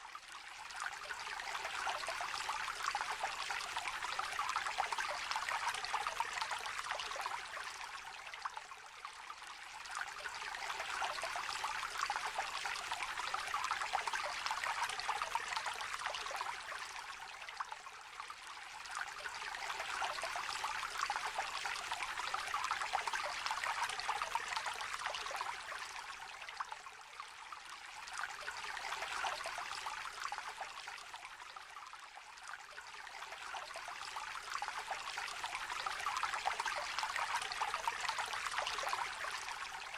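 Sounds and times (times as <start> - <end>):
small river babbling: 0.0 - 39.9.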